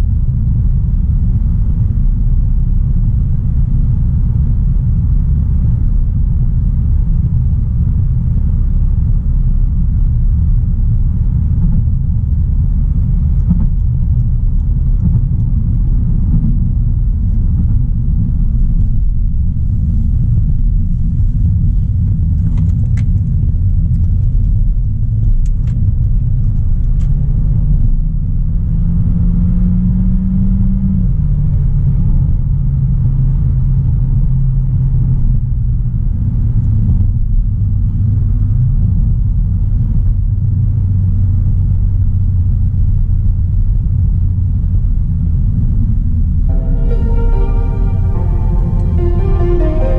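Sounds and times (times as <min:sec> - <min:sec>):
car engine rumble: 0:00.0 - 0:29.3.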